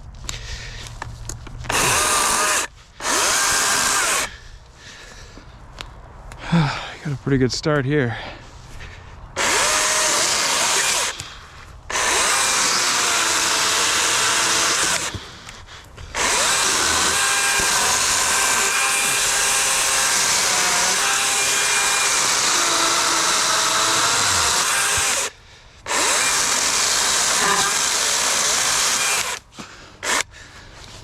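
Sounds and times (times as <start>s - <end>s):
chainsaw cutting log: 1.7s - 4.3s, 9.4s - 15.3s, 16.1s - 30.3s.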